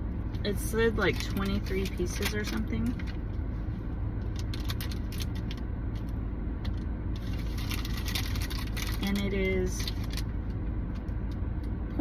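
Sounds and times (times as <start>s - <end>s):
plastic bag crinkling: 7.2s - 10.3s.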